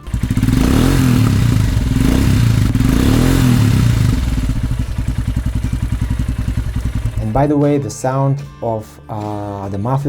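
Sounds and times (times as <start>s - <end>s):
motorcycle engine revving and idling: 0.0s - 7.5s.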